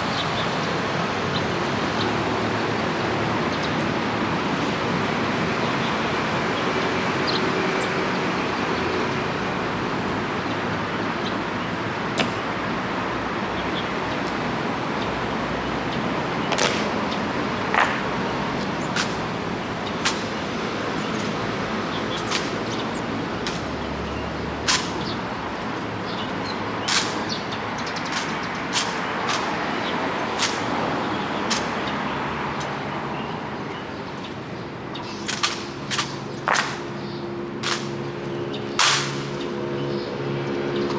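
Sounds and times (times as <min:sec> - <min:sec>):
boot-heel strikes: 0:12.2 - 0:12.6, 0:16.4 - 0:23.8, 0:26.9 - 0:29.8, 0:35.3 - 0:38.0
rifle handling cracks: 0:16.5 - 0:18.2, 0:19.0 - 0:19.3, 0:20.0 - 0:20.5, 0:26.9 - 0:27.3, 0:35.3 - 0:37.0, 0:37.6 - 0:38.1, 0:38.8 - 0:39.4.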